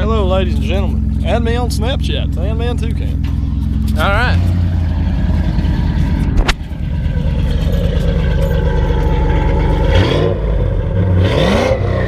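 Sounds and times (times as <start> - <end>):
vehicle engine idling and revving: 0.0 - 12.0.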